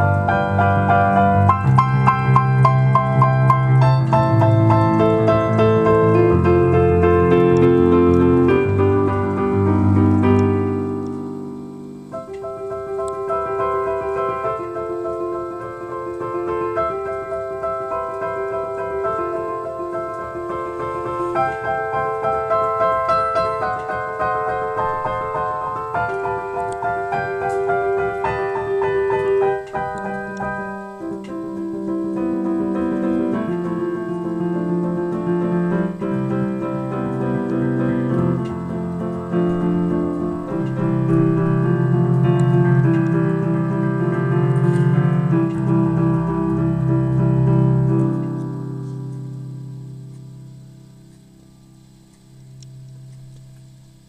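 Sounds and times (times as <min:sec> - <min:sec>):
piano melody: 0:00.0 - 0:54.0.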